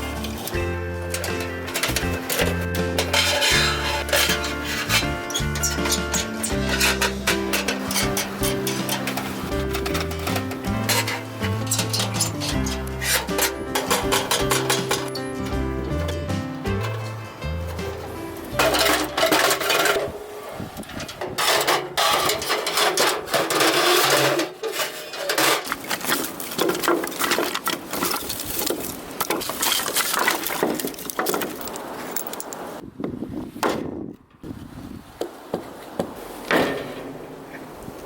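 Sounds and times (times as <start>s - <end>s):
firewood knocking and cracking: 25.6s - 31.8s.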